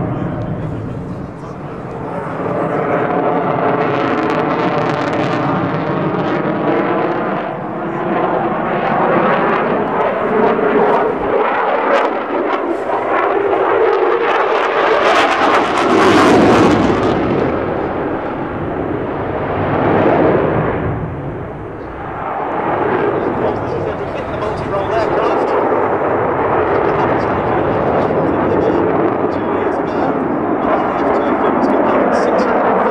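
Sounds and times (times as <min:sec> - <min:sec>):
jet fighter engines roaring: 0:00.0 - 0:32.9.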